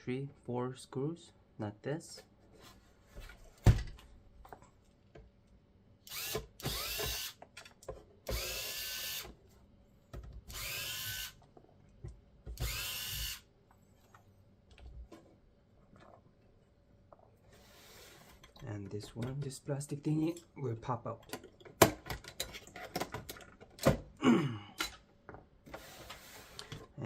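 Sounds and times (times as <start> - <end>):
electric screwdriver whining: 6.1 - 7.4, 8.3 - 9.3, 10.5 - 11.4, 12.6 - 13.5.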